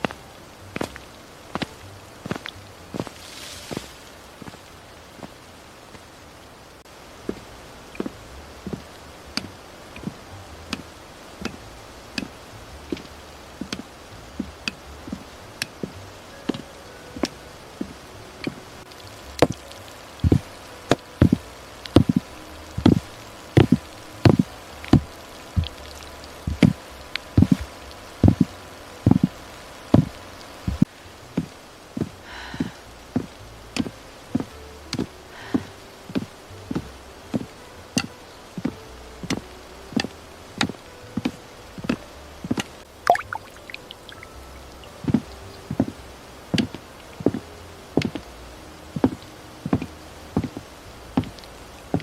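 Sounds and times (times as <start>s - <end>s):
faint background hiss: 0.0s - 52.0s
footsteps walking: 1.6s - 4.6s, 20.2s - 20.5s, 22.8s - 23.0s, 23.6s - 26.8s, 27.4s - 28.5s.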